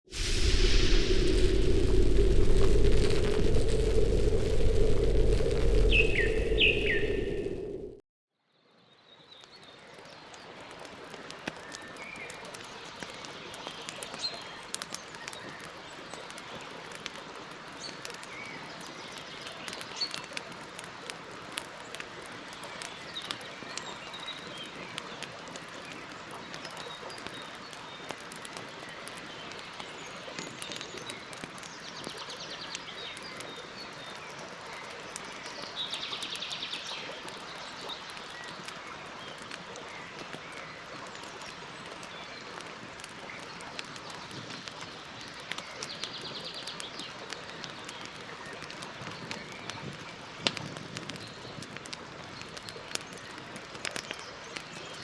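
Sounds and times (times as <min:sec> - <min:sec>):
campfire crackling and popping: 0:00.1 - 0:08.0, 0:10.6 - 0:55.0
birds chirping: 0:00.2 - 0:08.0.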